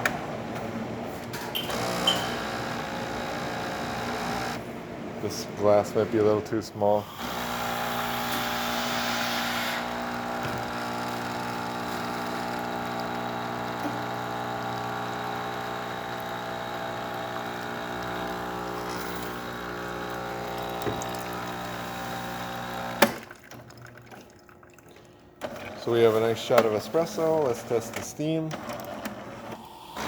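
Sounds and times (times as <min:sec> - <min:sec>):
espresso machine pump running: 0:01.6 - 0:04.6, 0:07.0 - 0:23.2.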